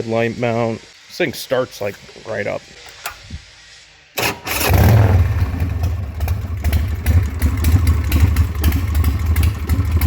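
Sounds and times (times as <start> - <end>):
motorcycle engine starting: 4.2 - 10.0.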